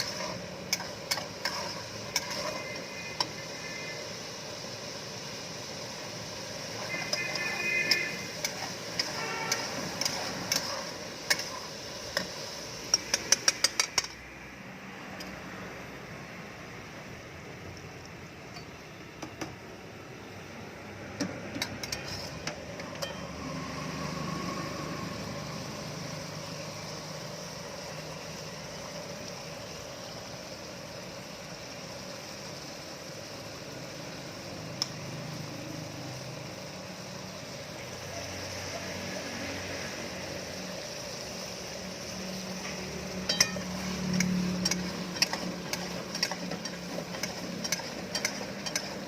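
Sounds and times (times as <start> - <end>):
metal utensils clinking: 0.0 - 3.4, 7.0 - 12.3, 21.5 - 23.4, 42.6 - 49.0
kitchen equipment hum: 0.0 - 49.0.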